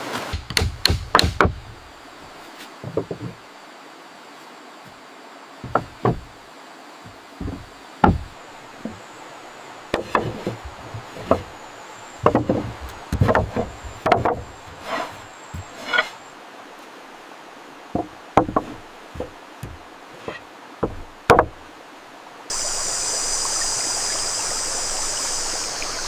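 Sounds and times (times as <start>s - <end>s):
knocks and thuds on wood: 0.3s - 1.7s, 2.8s - 3.4s, 5.6s - 6.3s, 7.0s - 9.0s, 9.9s - 11.6s, 12.2s - 16.0s, 18.0s - 21.6s
rain hiss: 1.6s - 26.0s.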